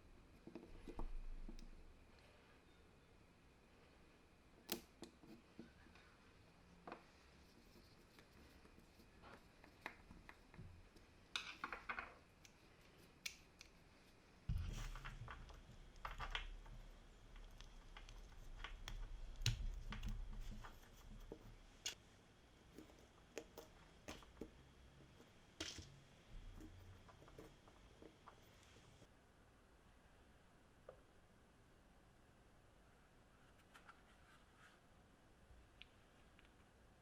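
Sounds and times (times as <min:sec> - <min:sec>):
small hard objects clicking: 0:09.6 - 0:14.0, 0:14.6 - 0:22.0.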